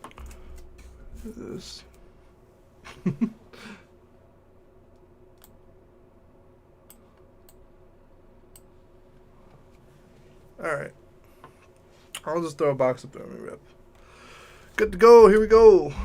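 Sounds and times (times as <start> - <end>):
computer mouse clicks: 5.4 - 5.6.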